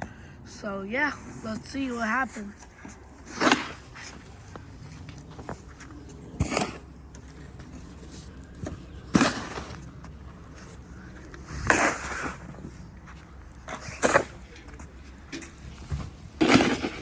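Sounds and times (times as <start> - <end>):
shovel scraping snow: 3.2 - 4.4, 6.4 - 6.8, 9.1 - 9.9, 11.5 - 12.6, 16.4 - 17.0.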